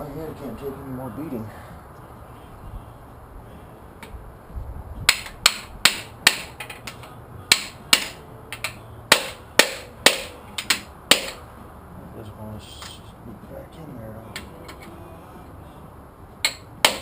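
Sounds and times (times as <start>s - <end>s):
hammer striking metal: 5.1s - 11.5s, 16.4s - 17.0s.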